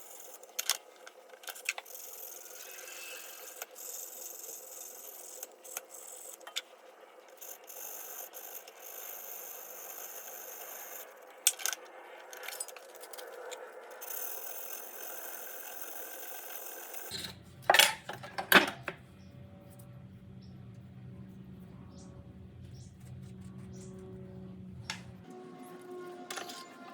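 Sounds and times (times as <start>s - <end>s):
metal scraping and rubbing: 24.9s - 26.9s.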